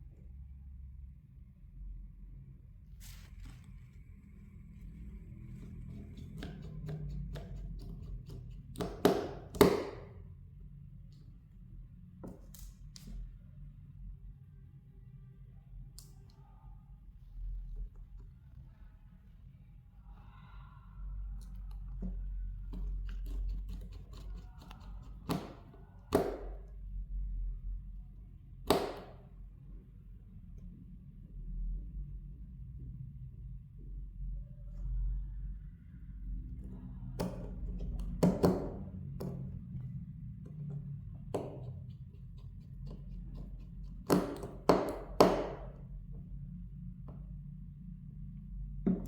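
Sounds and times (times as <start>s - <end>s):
low steady hum: 0.0s - 49.0s
short scrape: 3.0s - 4.0s.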